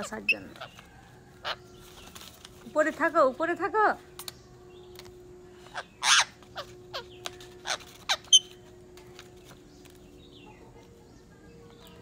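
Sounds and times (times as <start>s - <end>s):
parakeet screeching calls: 5.6s - 8.6s
sharp high bird chirp: 5.6s - 8.6s.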